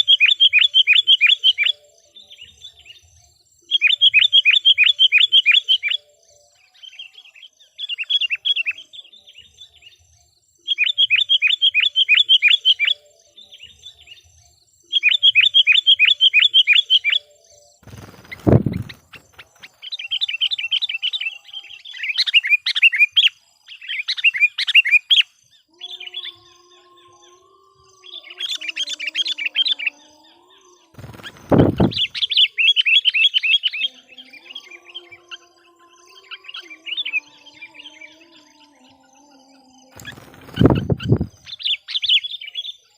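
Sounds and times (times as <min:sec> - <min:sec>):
bird chattering calls: 0:40.0 - 0:41.7.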